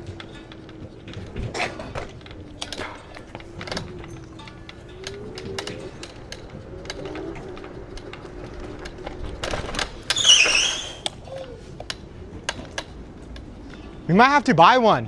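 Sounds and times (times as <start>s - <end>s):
rattling clicks: 0.0s - 14.0s
loud high squeak: 10.1s - 11.1s.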